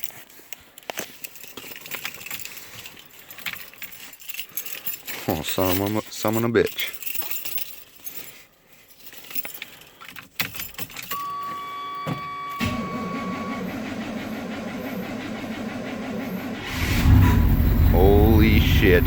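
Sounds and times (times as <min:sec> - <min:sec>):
keys jangling in ignition: 0:00.0 - 0:11.6, 0:17.0 - 0:19.0
truck engine starting and idling: 0:12.3 - 0:19.0.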